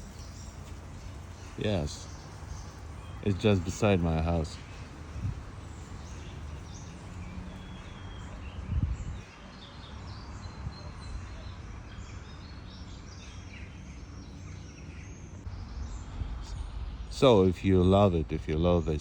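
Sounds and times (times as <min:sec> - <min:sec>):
steady low rumble: 0:00.0 - 0:09.2, 0:15.3 - 0:19.0
small birds chirping and singing: 0:00.0 - 0:19.0.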